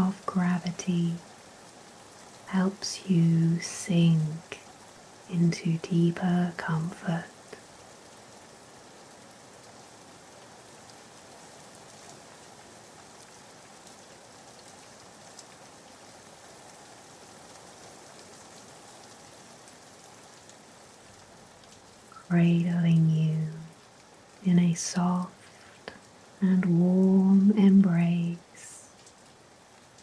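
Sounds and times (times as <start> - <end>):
raindrop ticks: 0.0 - 1.3, 13.2 - 16.0, 20.3 - 30.0
soft rain hiss: 0.0 - 30.0.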